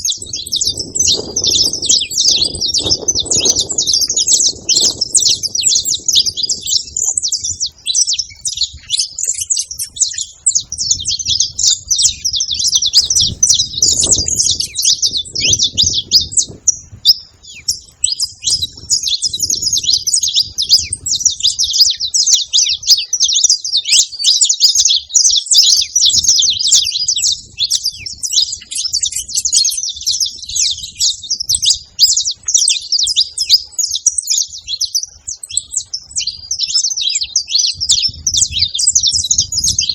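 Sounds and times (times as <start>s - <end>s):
finches chirping and trilling: 0.0s - 39.9s.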